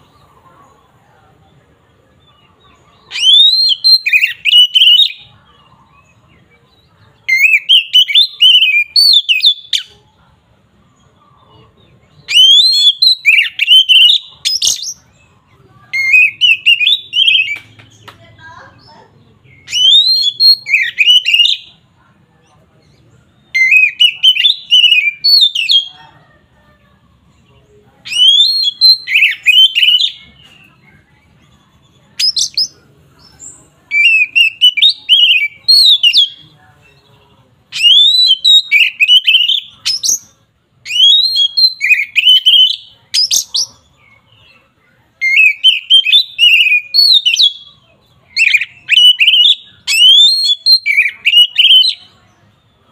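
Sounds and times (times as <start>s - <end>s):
bird singing whistles: 3.1s - 5.3s, 7.3s - 9.9s, 12.2s - 15.0s, 16.0s - 17.7s, 19.5s - 21.7s, 23.4s - 25.9s, 28.1s - 30.2s, 33.9s - 36.4s, 37.7s - 43.7s, 45.2s - 47.7s, 48.3s - 52.1s.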